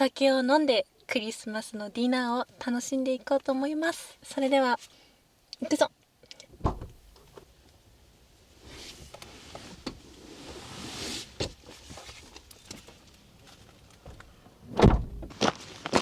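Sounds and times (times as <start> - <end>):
rustling: 6.5 - 7.4
heavy thump: 6.6 - 7.4, 14.1 - 15.4.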